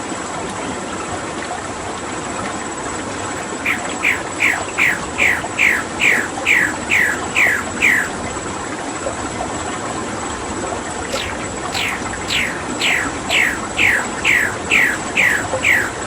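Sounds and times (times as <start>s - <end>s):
running water: 3.2s - 8.6s, 11.0s - 16.0s
bird calling falling notes: 3.4s - 8.3s, 11.1s - 16.0s.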